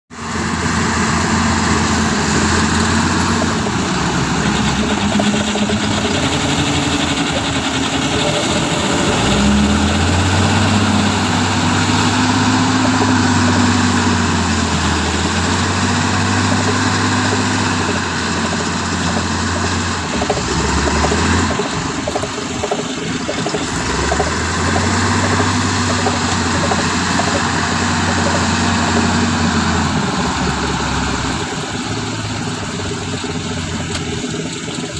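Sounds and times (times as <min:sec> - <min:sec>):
diesel truck engine revving: 0:00.2 - 0:34.9.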